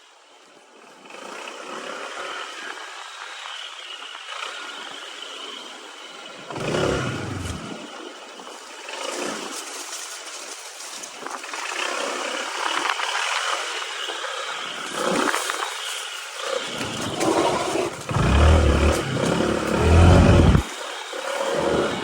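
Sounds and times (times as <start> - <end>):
motorbike engine running: 6.5 - 7.8, 16.7 - 20.7
tyres on loose ground: 6.5 - 7.8, 15.8 - 20.7
heavy rumbling jolts: 6.6 - 7.8, 16.7 - 20.7.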